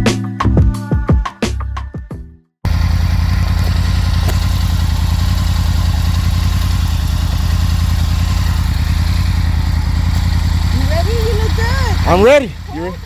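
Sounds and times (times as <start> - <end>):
motorcycle engine idling: 2.7 - 13.0.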